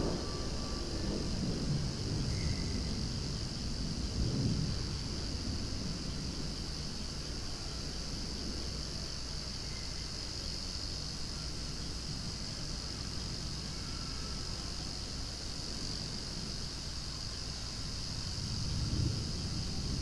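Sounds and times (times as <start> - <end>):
cicadas droning: 0.0 - 20.0.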